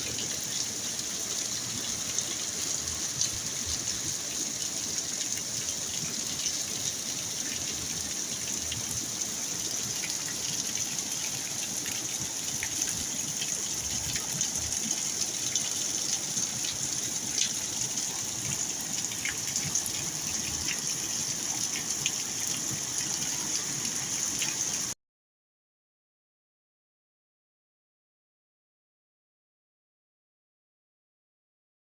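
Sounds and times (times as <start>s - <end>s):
running water splashing: 0.0s - 25.0s.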